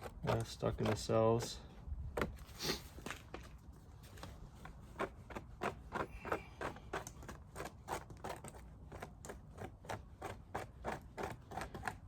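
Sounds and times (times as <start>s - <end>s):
scraping strokes on honeycomb: 4.1s - 12.0s.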